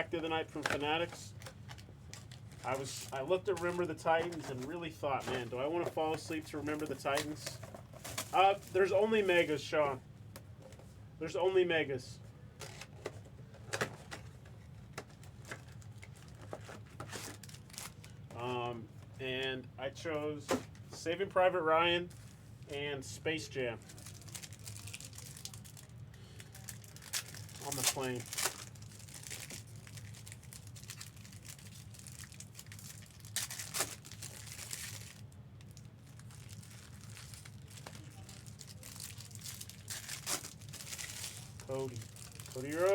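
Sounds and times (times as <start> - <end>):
foil wrappers crinkling and tearing: 0.0 - 9.6, 13.9 - 18.4, 23.7 - 42.9
low room hum: 0.0 - 42.9
cards being handled: 41.6 - 42.9.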